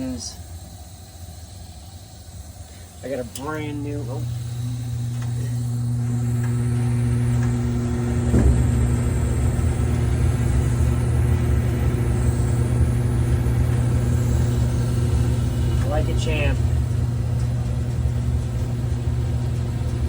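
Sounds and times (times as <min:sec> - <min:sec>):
gas furnace humming: 0:00.0 - 0:20.0
brief knock: 0:08.3 - 0:08.7.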